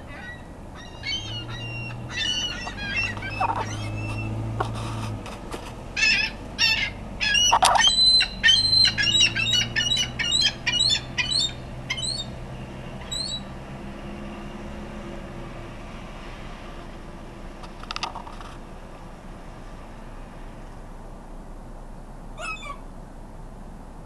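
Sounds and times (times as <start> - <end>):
gull calling: 0.0 - 4.8, 6.0 - 12.4, 13.0 - 13.5, 22.4 - 22.9.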